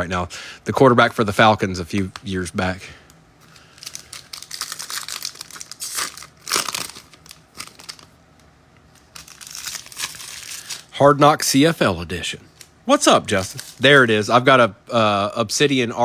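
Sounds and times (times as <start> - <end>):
plastic wrapping crinkling: 3.4 - 8.2, 8.9 - 10.9, 13.3 - 14.0.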